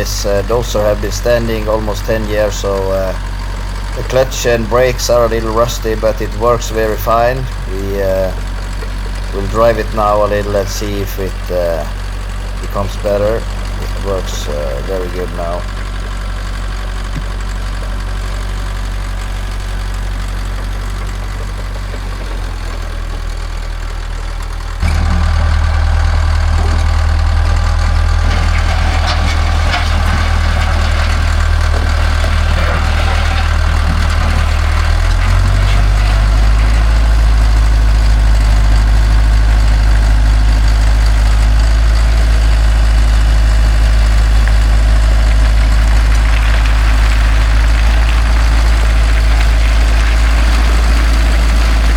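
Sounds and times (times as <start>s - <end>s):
bulldozer diesel engine running: 0.0s - 51.9s
irregular clattering: 28.2s - 51.9s.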